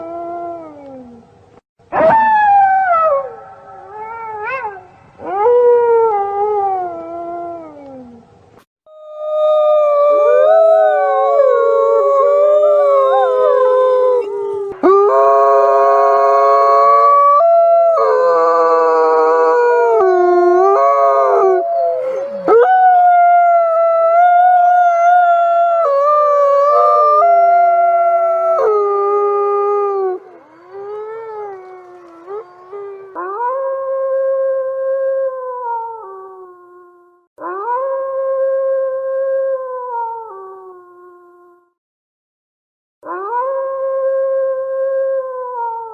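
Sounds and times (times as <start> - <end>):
wolves howling: 8.9 - 36.4.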